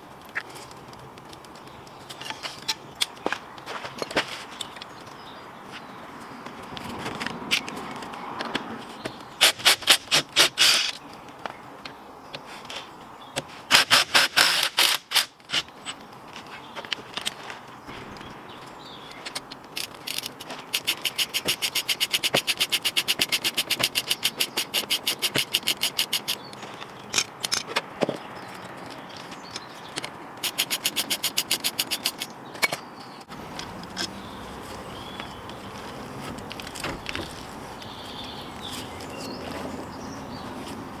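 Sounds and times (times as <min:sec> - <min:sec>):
knocks and scrapes: 0:17.3 - 0:28.3, 0:29.4 - 0:40.8
socket ratchet clicking: 0:19.8 - 0:26.4, 0:30.4 - 0:32.3.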